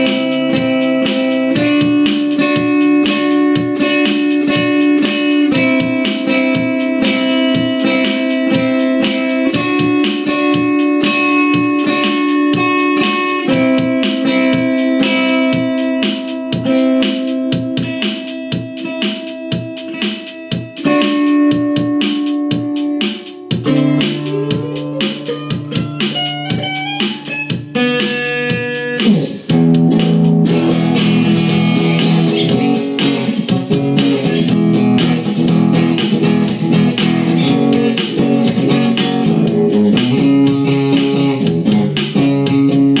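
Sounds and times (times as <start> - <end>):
blues guitar playing: 0.0 - 43.0.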